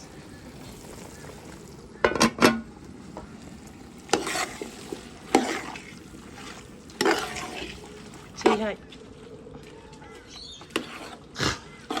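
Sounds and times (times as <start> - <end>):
utensil scraping and knocking on pan: 4.1 - 5.8, 7.0 - 7.7, 10.7 - 11.2.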